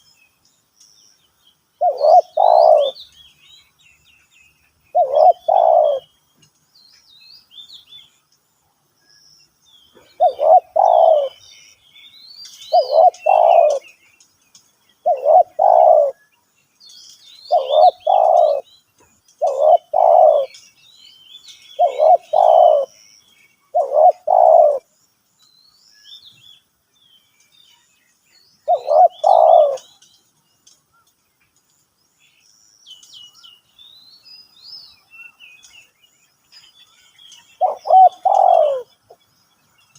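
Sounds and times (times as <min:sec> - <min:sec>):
small birds chirping: 0:00.0 - 0:39.9
dove cooing: 0:01.8 - 0:03.0, 0:04.9 - 0:06.1, 0:09.9 - 0:11.4, 0:12.7 - 0:13.9, 0:15.0 - 0:16.2, 0:17.5 - 0:18.7, 0:19.4 - 0:20.6, 0:21.8 - 0:23.0, 0:23.7 - 0:24.9, 0:28.6 - 0:29.9, 0:37.6 - 0:38.9.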